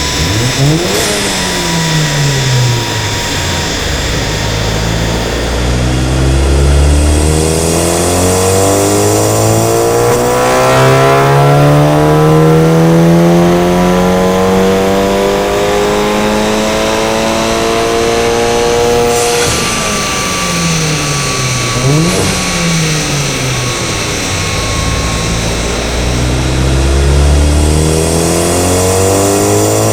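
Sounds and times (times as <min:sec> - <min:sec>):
car engine revving at full throttle: 0:00.0 - 0:29.9.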